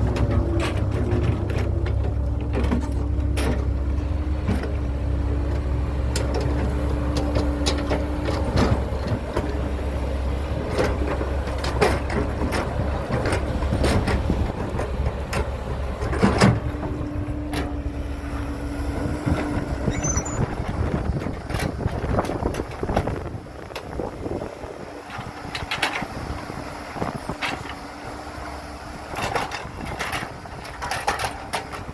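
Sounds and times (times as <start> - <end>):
diesel machinery rumbling: 0.0 - 31.9
machinery whining tone: 19.8 - 20.8.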